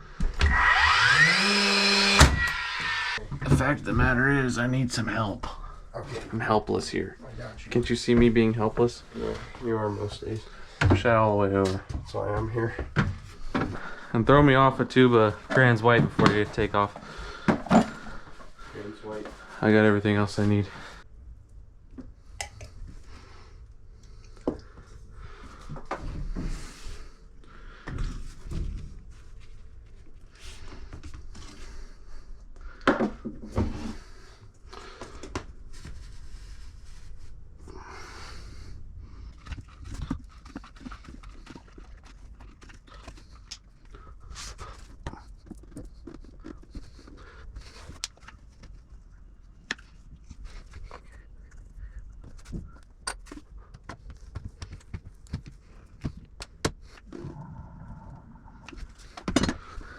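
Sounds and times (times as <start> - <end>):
rustling handling noises: 39.0 - 57.1.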